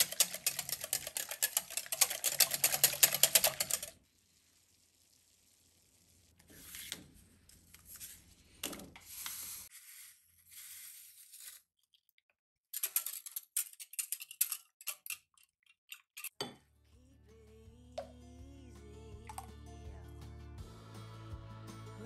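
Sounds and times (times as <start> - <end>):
whisk clinking in glass bowl: 0.0 - 3.9
music: 16.7 - 22.0.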